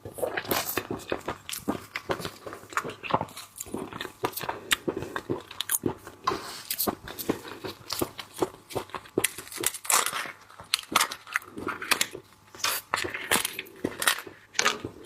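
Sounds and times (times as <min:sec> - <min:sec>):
crunchy chewing: 0:00.0 - 0:15.0.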